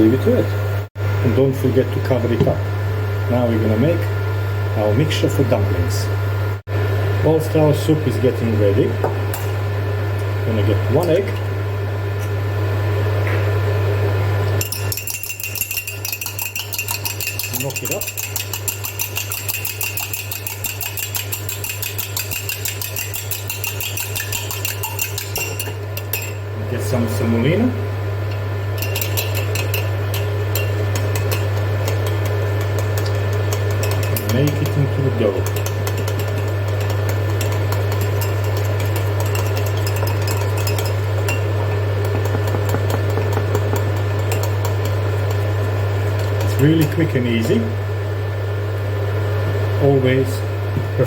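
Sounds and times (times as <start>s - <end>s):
steady low hum: 0.0s - 51.0s
egg beaten in a bowl: 14.6s - 26.4s, 28.7s - 47.1s.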